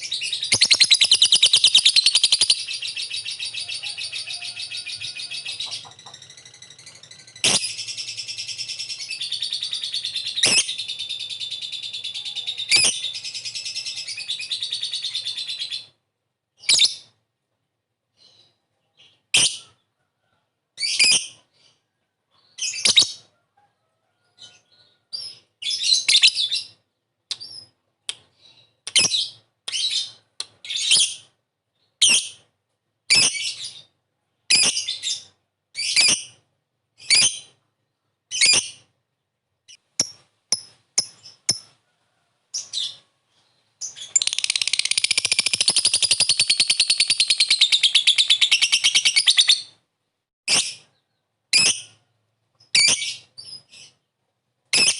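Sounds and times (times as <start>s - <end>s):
bird chattering trill: 0.0s - 15.9s, 43.9s - 49.6s
sharp high bird chirps: 0.0s - 15.9s, 39.7s - 41.7s, 43.8s - 49.7s.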